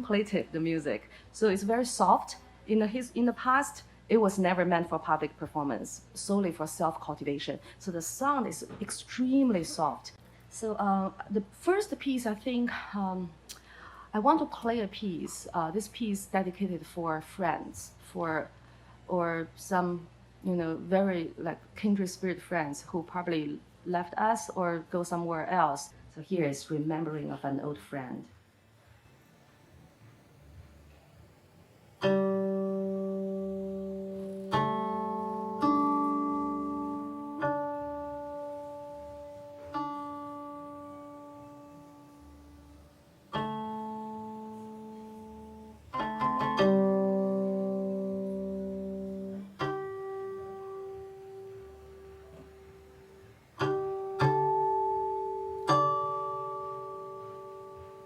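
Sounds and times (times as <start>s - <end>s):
plucked zither notes: 32.0s - 58.0s.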